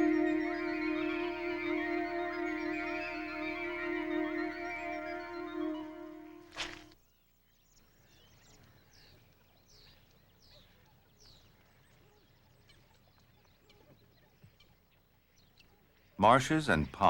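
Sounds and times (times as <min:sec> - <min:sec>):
held synthesizer chord: 0:00.0 - 0:06.9
high falling bird chirps: 0:00.0 - 0:07.0.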